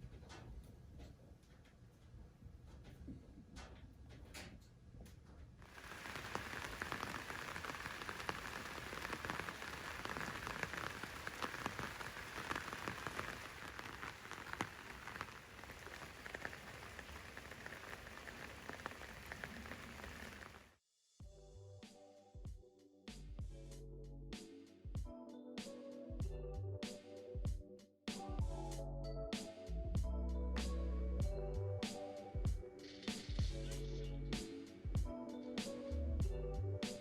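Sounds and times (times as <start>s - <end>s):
rain pattering: 5.6s - 20.8s.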